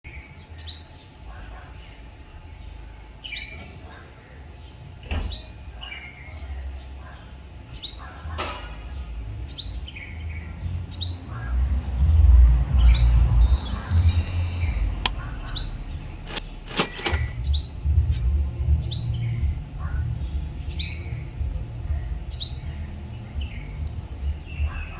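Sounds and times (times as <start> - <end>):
small bird chirping: 12.9 - 18.2
sharp click: 16.3 - 17.4.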